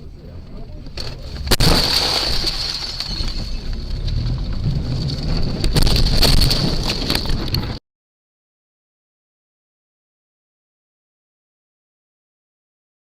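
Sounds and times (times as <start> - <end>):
vehicle rumble: 0.0 - 7.8
wind noise on microphone: 3.1 - 7.8.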